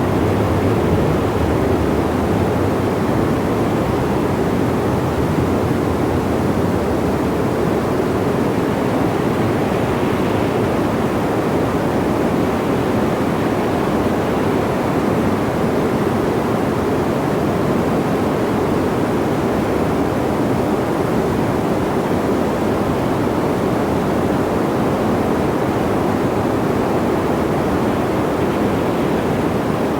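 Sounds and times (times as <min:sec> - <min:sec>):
steady wind rushing: 0:00.0 - 0:16.8.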